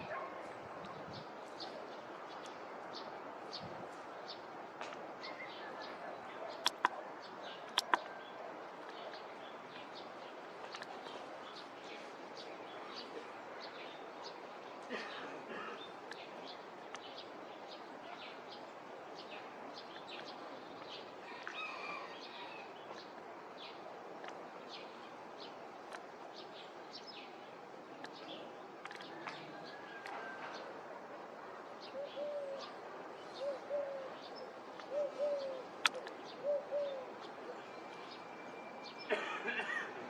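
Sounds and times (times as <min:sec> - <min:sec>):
small birds chirping: 0:00.0 - 0:30.7
outdoor background noise: 0:00.0 - 0:40.0.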